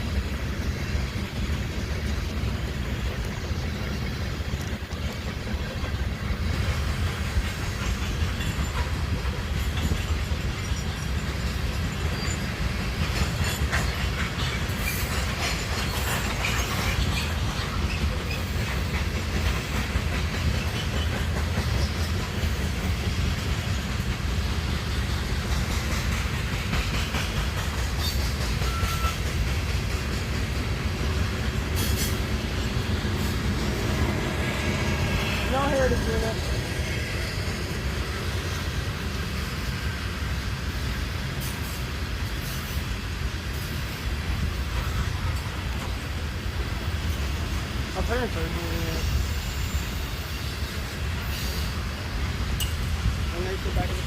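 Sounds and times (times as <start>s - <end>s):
train wheels rumbling on rail: 0.0s - 54.0s
faint high squeal: 28.6s - 29.2s.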